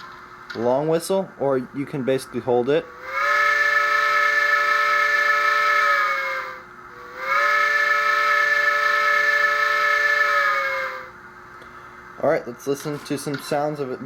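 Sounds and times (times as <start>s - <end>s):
model train steam whistle: 2.8s - 11.2s.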